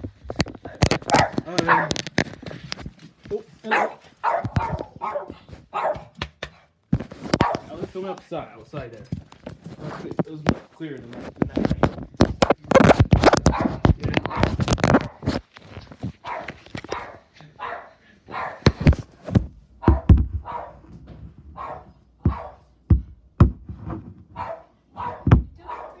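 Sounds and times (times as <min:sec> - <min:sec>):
dog barking: 0:01.1 - 0:02.0, 0:03.6 - 0:06.2, 0:07.4 - 0:07.7, 0:13.4 - 0:15.3, 0:16.2 - 0:18.9, 0:19.8 - 0:20.9, 0:21.6 - 0:22.7, 0:24.4 - 0:26.0.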